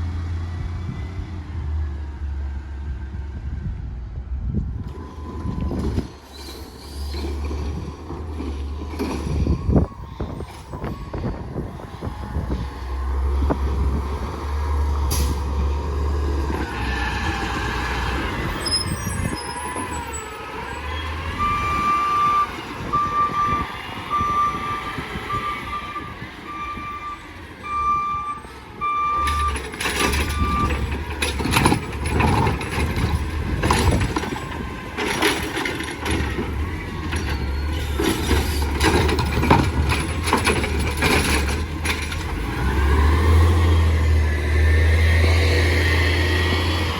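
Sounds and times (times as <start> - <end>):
diesel engine running: 6.9 - 46.9
air brakes hissing: 15.1 - 15.6.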